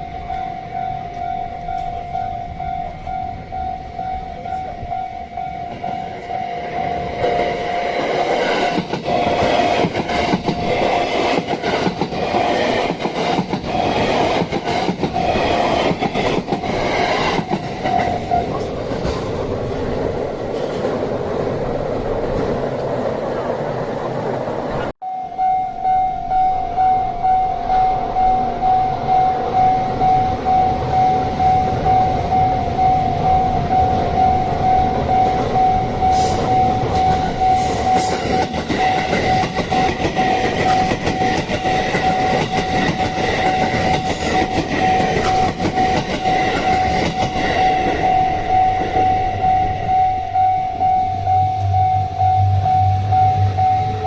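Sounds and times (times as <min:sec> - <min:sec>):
level crossing warning bell: 0:00.0 - 0:18.9, 0:25.0 - 0:54.0
train wheels clattering: 0:07.2 - 0:21.2, 0:36.0 - 0:49.2.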